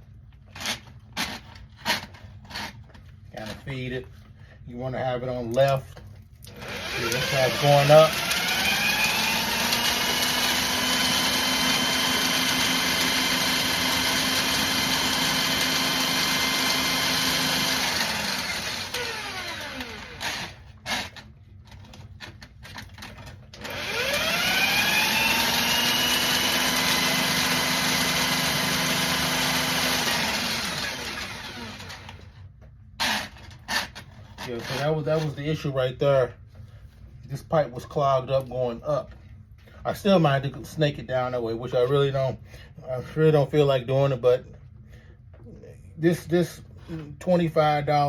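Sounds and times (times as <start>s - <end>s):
drill motor whine: 6.6s - 21.2s, 23.6s - 32.2s, 33.0s - 33.4s.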